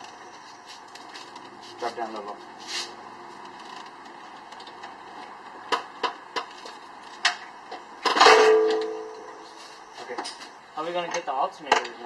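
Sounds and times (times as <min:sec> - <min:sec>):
ringing metallic clang: 0:08.0 - 0:09.6.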